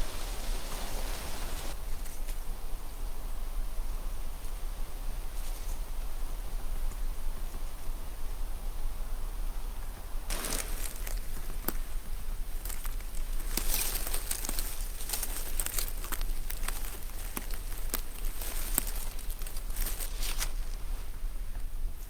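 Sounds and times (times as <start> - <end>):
rustling and crinkling: 10.3 - 22.0.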